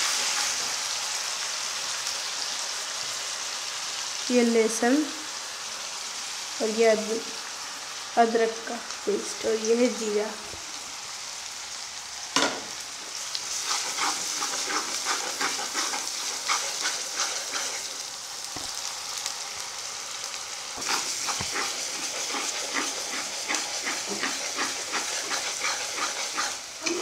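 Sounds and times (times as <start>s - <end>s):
paste sizzling in hot oil: 0.0s - 27.0s
metal spatula scraping a pan: 13.5s - 18.0s, 20.8s - 27.0s.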